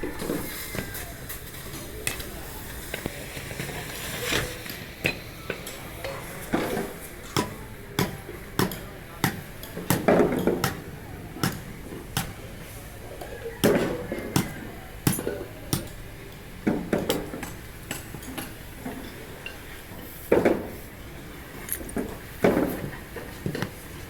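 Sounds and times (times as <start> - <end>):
hand tools striking metal parts: 13.6 - 16.0.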